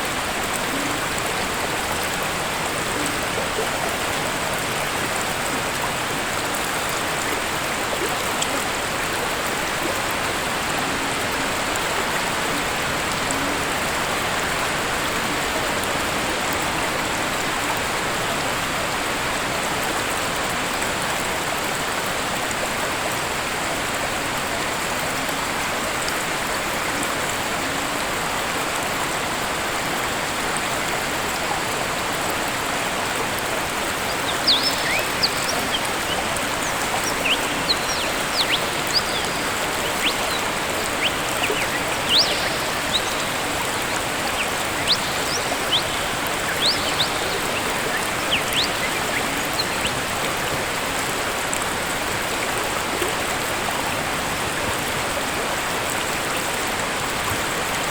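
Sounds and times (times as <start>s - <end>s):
waterfall rushing: 0.0s - 18.0s, 30.2s - 57.9s
birds chirping: 33.0s - 50.8s.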